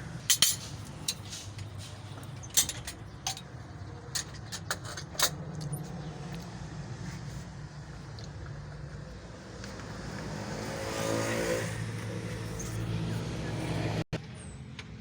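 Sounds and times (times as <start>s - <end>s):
metallic clinks and knocks: 0.3s - 5.7s.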